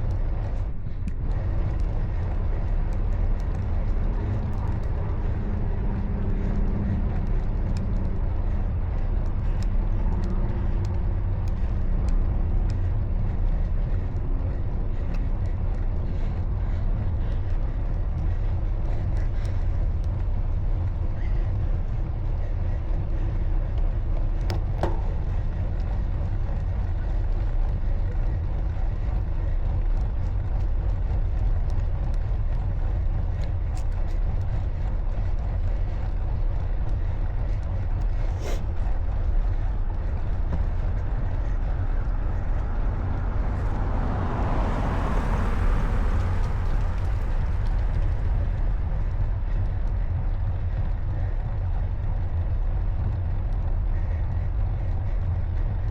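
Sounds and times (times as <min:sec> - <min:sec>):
wind rumble on microphone: 0:00.0 - 0:55.9
vehicle passing: 0:33.8 - 0:51.6.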